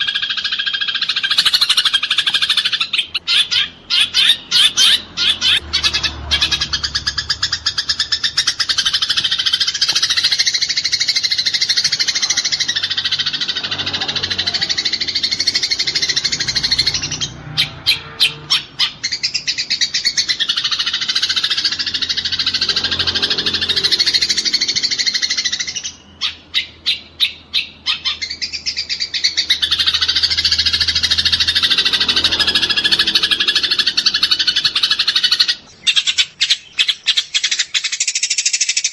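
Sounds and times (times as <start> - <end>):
sparrows chattering: 0.0 - 38.9.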